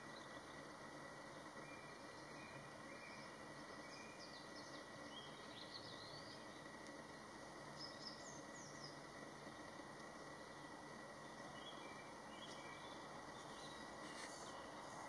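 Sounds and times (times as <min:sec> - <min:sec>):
steady low hiss: 0:00.0 - 0:15.0
faint bird calls: 0:10.5 - 0:15.0.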